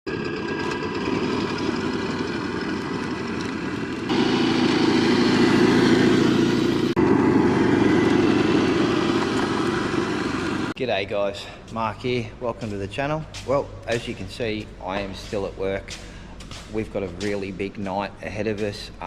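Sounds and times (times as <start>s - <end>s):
motor running: 0.1s - 10.8s.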